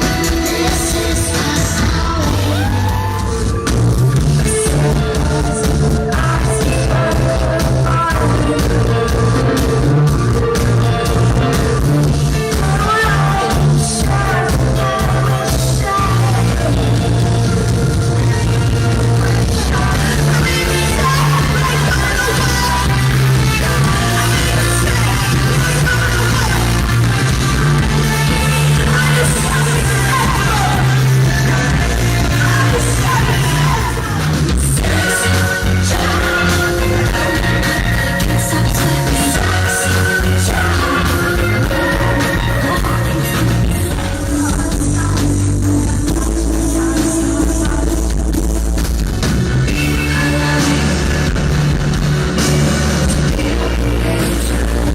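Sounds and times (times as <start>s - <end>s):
woman singing: 0.0s - 48.6s, 49.6s - 51.4s, 52.3s - 54.9s
bass: 0.0s - 54.9s
drums: 0.0s - 54.9s
live synthpop band: 0.0s - 54.9s.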